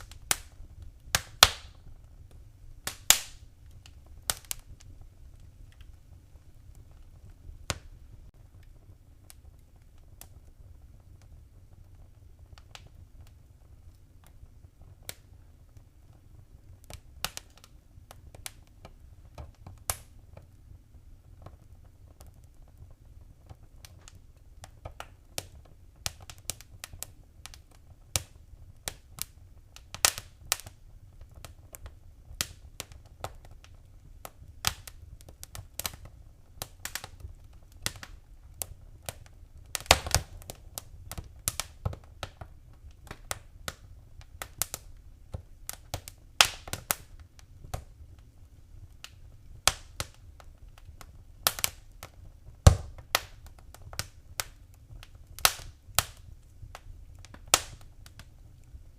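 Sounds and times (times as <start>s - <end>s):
low rumble of flames: 0.0s - 58.9s
wood fire crackling and popping: 0.0s - 58.9s.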